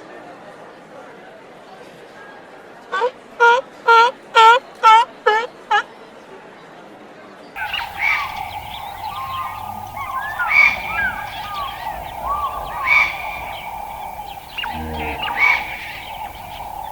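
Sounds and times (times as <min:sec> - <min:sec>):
birds chirping and calling: 0:07.6 - 0:16.9
steady background drone: 0:07.6 - 0:16.9.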